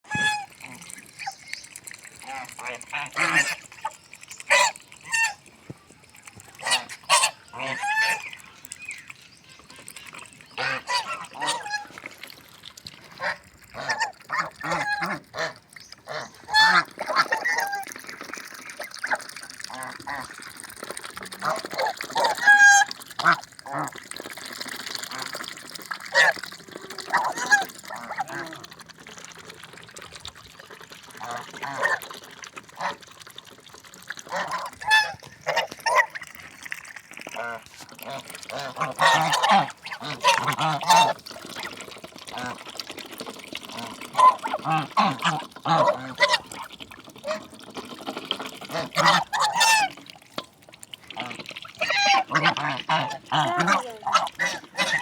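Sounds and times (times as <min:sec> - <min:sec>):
geese drinking water: 0:00.0 - 0:55.0
geese honking: 0:06.6 - 0:08.4, 0:34.3 - 0:36.1, 0:38.5 - 0:41.2, 0:49.0 - 0:50.0.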